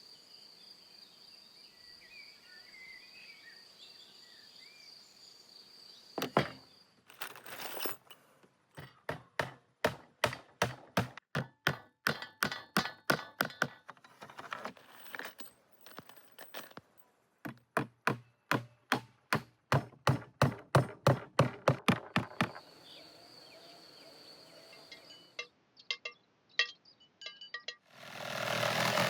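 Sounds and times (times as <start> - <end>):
knife chopping on wooden board: 8.8 - 13.8, 17.5 - 22.6
light clinks: 14.8 - 17.0.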